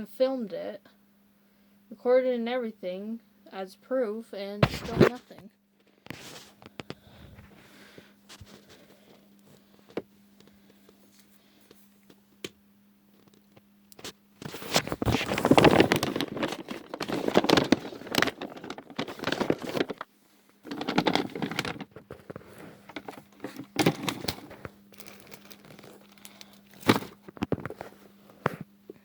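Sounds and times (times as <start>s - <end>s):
plastic bag crinkling: 14.4s - 28.0s.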